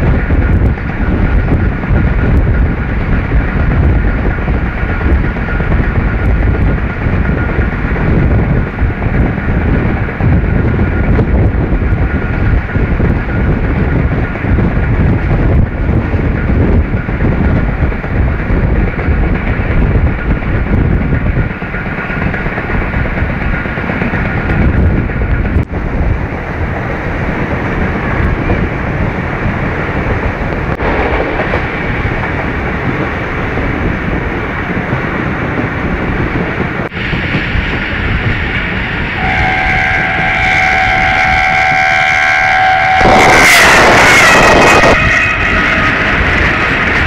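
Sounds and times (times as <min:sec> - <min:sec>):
train wheels rumbling on track: 0:00.0 - 0:47.0
train horn: 0:39.2 - 0:47.0.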